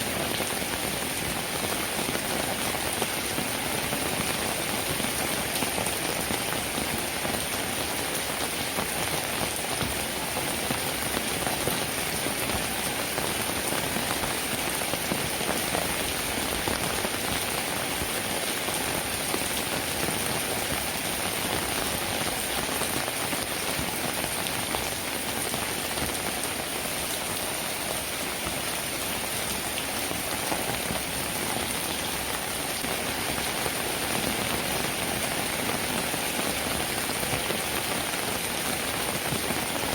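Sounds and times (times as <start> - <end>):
rain on a roof: 0.0 - 39.9.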